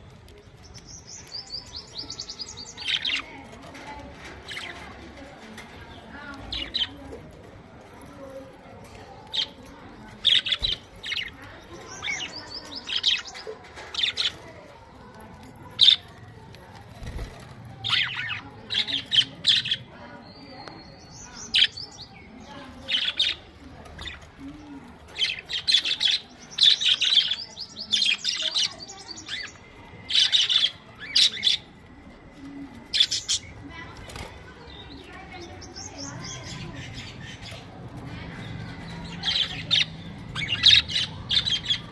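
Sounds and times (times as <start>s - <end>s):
budgerigars chirping: 38.9s - 41.9s.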